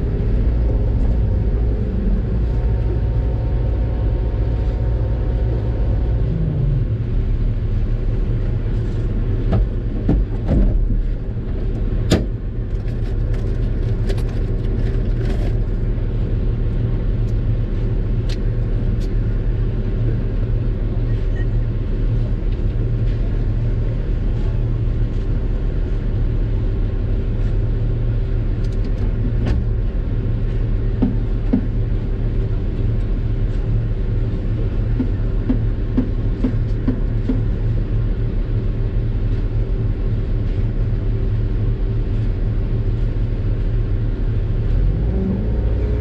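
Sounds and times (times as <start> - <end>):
excavator diesel engine drone: 0.0 - 46.0.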